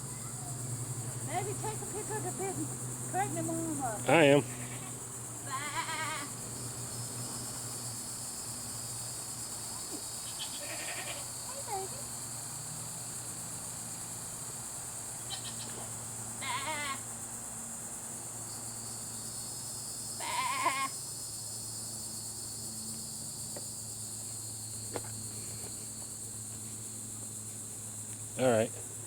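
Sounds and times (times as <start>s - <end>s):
goat bleating: 4.3s - 6.3s, 10.2s - 11.3s, 15.3s - 15.8s, 16.4s - 17.0s, 20.2s - 21.0s.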